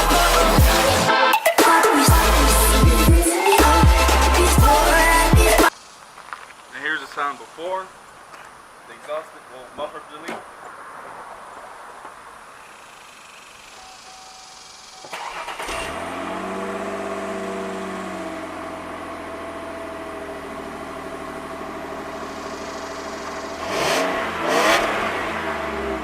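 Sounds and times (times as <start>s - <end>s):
car engine starting and idling: 14.1s - 26.0s
engine revving: 15.0s - 26.0s.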